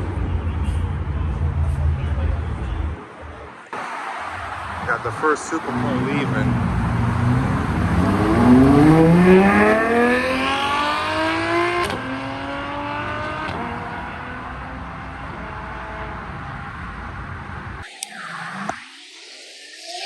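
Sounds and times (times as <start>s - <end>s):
car engine accelerating hard: 4.6s - 17.3s.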